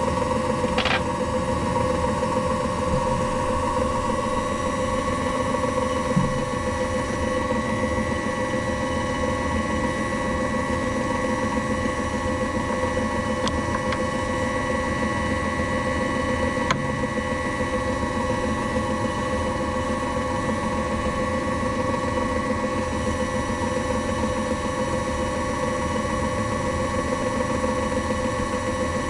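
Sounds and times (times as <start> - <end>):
machine tool motor whining: 0.6 - 1.2.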